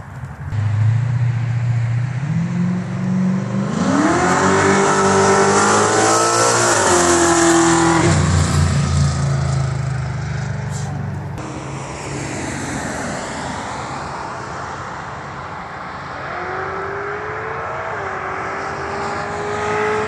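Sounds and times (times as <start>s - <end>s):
car engine accelerating hard: 0.5s - 10.6s, 16.2s - 20.0s.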